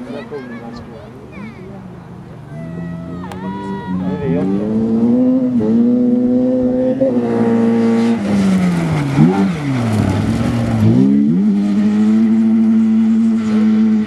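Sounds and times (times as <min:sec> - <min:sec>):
car engine revving hard: 0:04.0 - 0:14.0.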